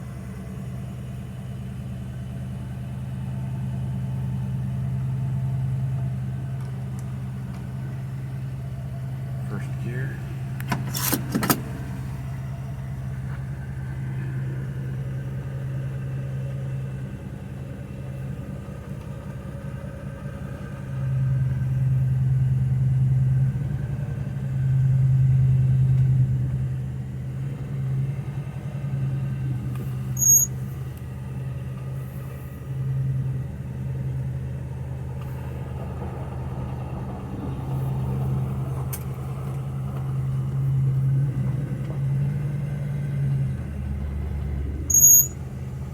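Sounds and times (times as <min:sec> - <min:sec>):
car engine accelerating: 0:00.0 - 0:45.9
brief high chirp: 0:30.2 - 0:30.5, 0:44.9 - 0:45.4.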